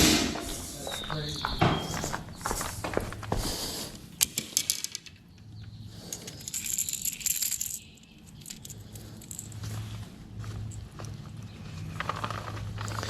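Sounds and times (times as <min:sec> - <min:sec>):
high hiss: 0:00.0 - 0:02.0
fishing lure clicking and rattling: 0:06.0 - 0:09.6.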